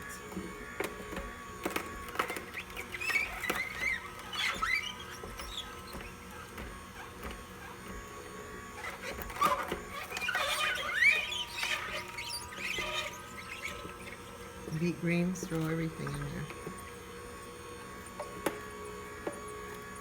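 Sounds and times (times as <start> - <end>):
juicer motor hum: 0.0 - 20.0
juicer squeaking and creaking: 0.0 - 20.0.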